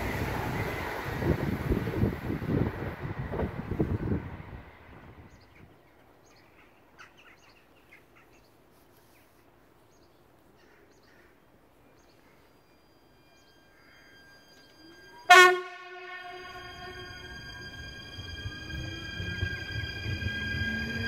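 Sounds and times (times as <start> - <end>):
train noise: 0.0 - 6.8, 11.4 - 21.0.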